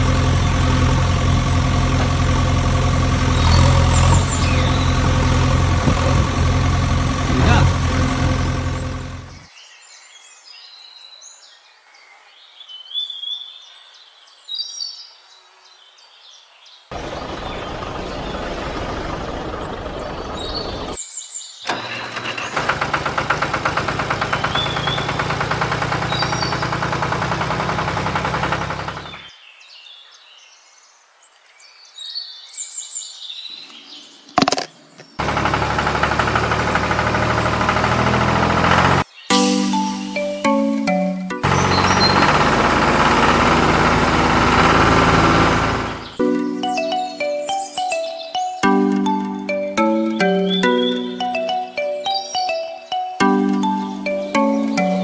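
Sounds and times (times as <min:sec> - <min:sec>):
engine running with fast rattle: 0:00.0 - 0:09.5, 0:16.9 - 0:21.0, 0:21.7 - 0:29.3, 0:34.4 - 0:39.1, 0:41.3 - 0:47.0
birds chirping: 0:00.0 - 0:55.0.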